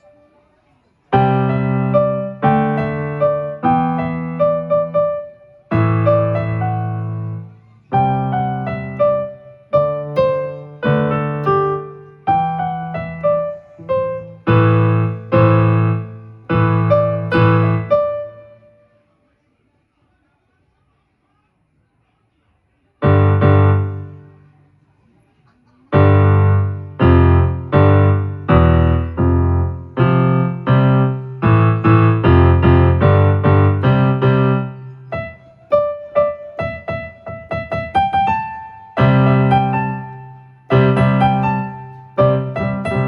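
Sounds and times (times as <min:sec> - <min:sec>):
electronic keyboard piano chords: 0:01.1 - 0:18.7, 0:23.0 - 0:24.4, 0:25.9 - 0:43.0.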